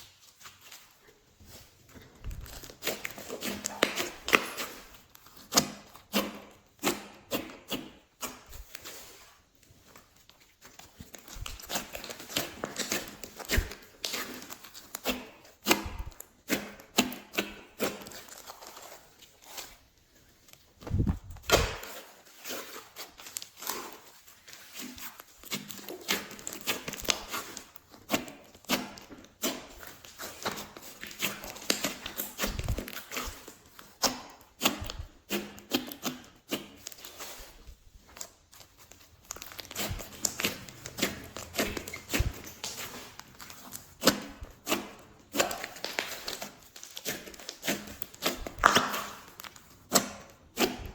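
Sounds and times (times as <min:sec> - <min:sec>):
slime squishing with sticky clicks: 0:38.6 - 0:50.9.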